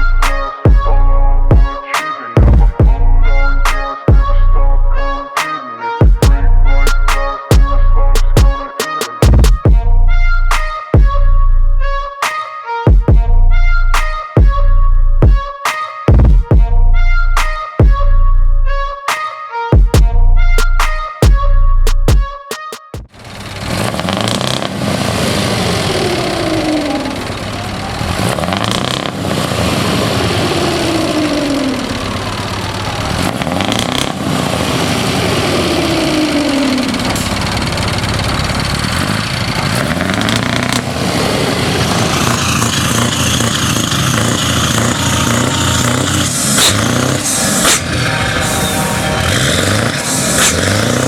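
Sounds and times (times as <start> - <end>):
diesel trucks revving: 0.0 - 1.5, 23.1 - 51.0.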